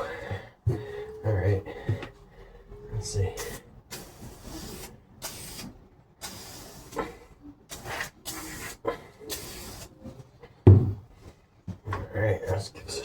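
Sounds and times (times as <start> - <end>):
aerosol spray can hissing: 3.9 - 7.0.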